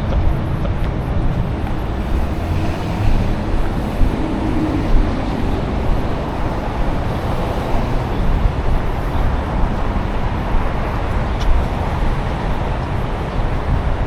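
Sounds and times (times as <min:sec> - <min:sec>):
city street traffic rumble: 0:00.0 - 0:14.0.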